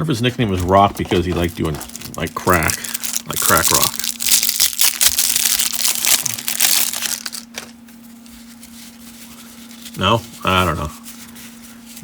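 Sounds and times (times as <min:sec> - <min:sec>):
cellophane wrapper crinkling: 0:00.4 - 0:08.3.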